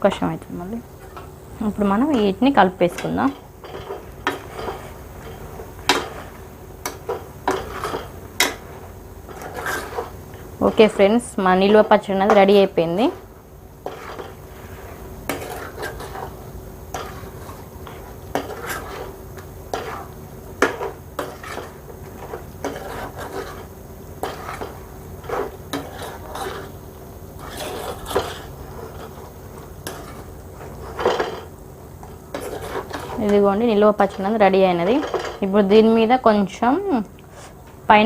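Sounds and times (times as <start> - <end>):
spoon clinking and scraping pan: 1.0 - 8.7, 15.3 - 26.8.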